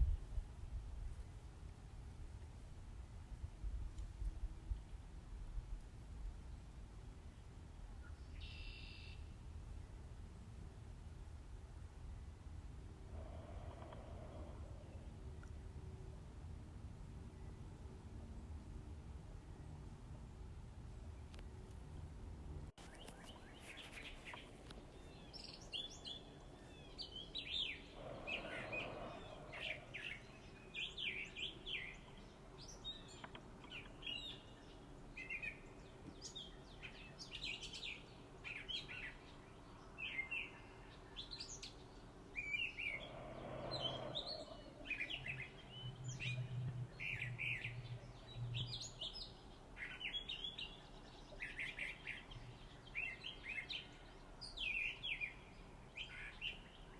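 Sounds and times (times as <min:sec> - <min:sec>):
small birds chirping: 0:22.8 - 0:56.9.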